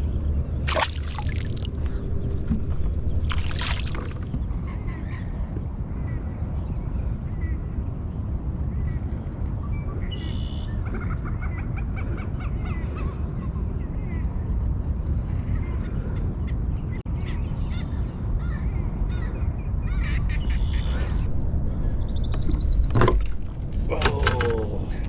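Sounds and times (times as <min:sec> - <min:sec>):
birds calling: 0:00.7 - 0:05.2.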